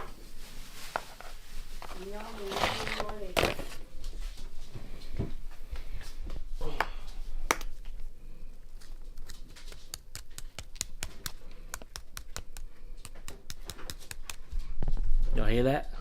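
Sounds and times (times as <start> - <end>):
pork skin crackling and crunching: 7.4 - 14.6.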